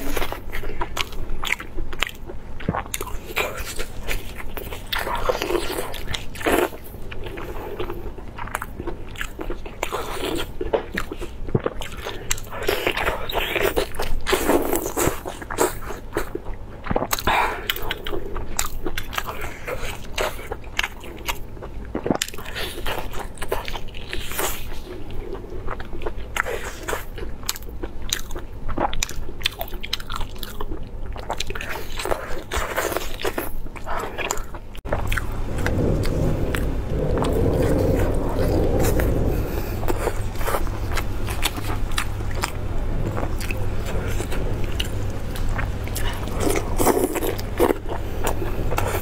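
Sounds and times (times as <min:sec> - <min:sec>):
wet chewing and biting: 0:00.0 - 0:49.0.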